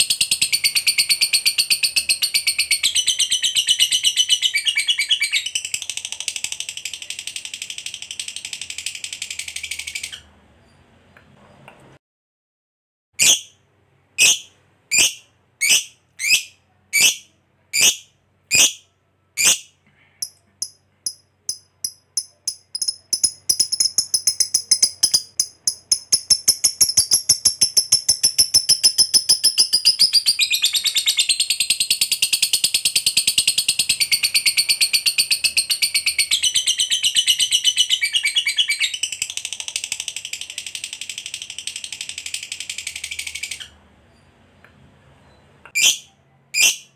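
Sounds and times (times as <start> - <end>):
lovebird chattering calls: 13.2 - 13.6, 14.2 - 17.2, 17.8 - 18.8, 19.4 - 19.7, 21.5 - 31.2, 45.8 - 46.9.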